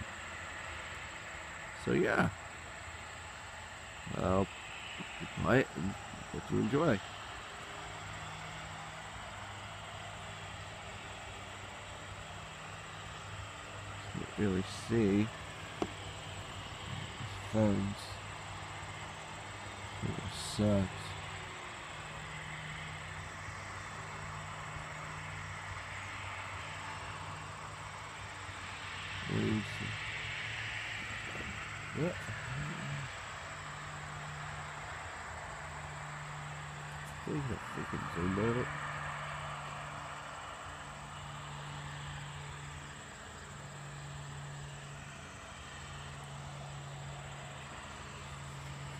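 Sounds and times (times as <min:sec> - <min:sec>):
aircraft engines droning: 0:00.0 - 0:48.9.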